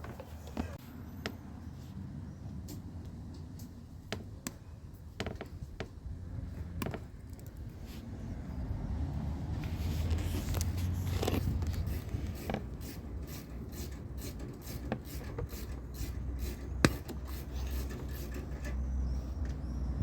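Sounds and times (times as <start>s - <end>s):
wiring scraping and rubbing: 9.6s - 20.0s.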